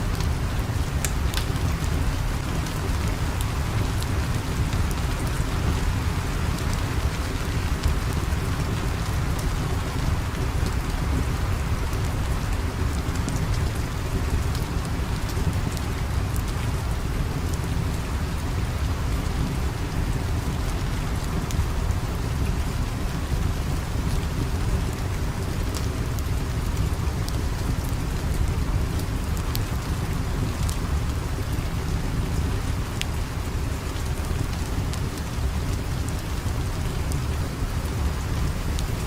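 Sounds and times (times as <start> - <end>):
steady rain: 0.0 - 39.0
sharp crackles: 0.1 - 11.2.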